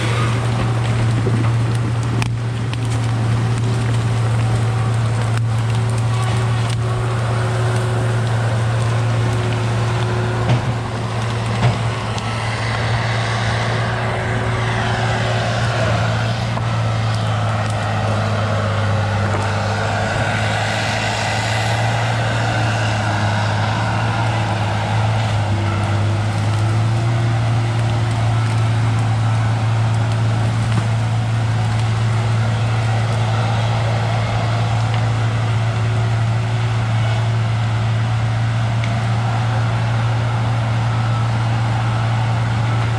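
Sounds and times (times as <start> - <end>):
engine humming steadily: 0.0 - 42.9.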